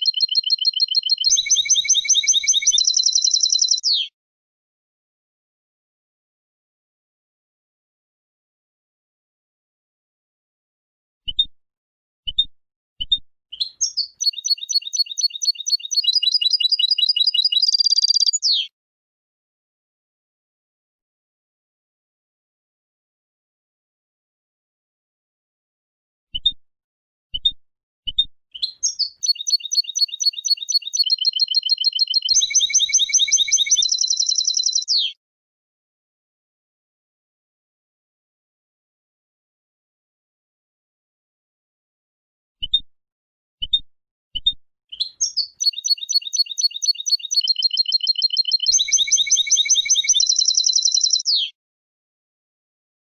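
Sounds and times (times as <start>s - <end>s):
goldfinch singing: 0.0s - 4.1s, 13.0s - 18.7s, 28.1s - 35.2s, 44.9s - 51.5s.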